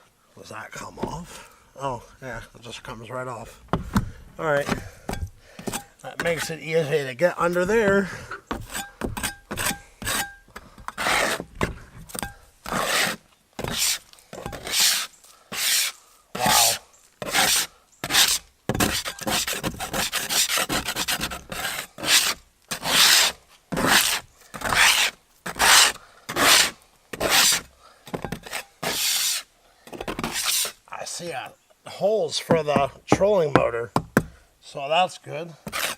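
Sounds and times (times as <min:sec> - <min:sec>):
metal spatula scraping carpet: 0:16.6 - 0:27.6, 0:35.7 - 0:35.9.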